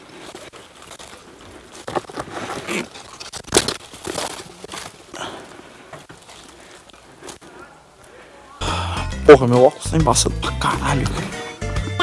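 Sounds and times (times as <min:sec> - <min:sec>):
crunching and rustling of debris: 0:00.0 - 0:08.6.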